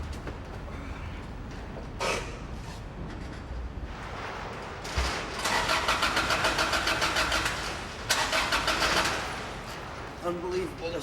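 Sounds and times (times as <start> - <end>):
car engine cranking by starter: 5.3 - 9.4.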